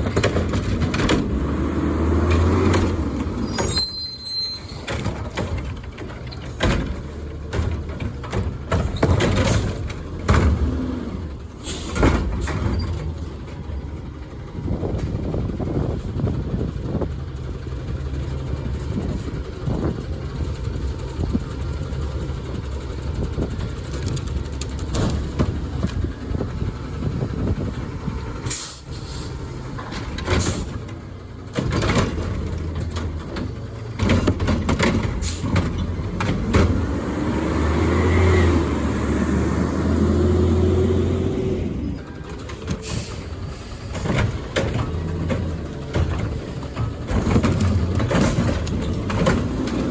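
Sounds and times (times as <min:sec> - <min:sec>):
truck diesel engine running: 0:00.0 - 0:49.9
air brake hisses: 0:11.6 - 0:12.0, 0:28.5 - 0:29.4, 0:42.8 - 0:44.0
engine revving with whine: 0:36.0 - 0:41.9.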